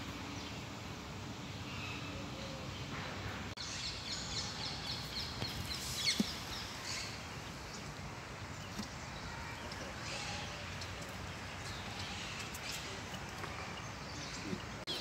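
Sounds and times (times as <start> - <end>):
outdoor background noise: 0.0 - 15.0
small birds chirping: 3.6 - 15.0.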